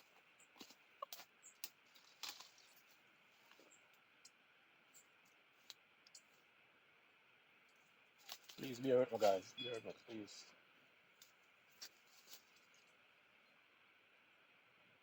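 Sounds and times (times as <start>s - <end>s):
faint steady hiss: 1.6s - 15.0s
faint light clicks and ticks: 5.0s - 6.4s.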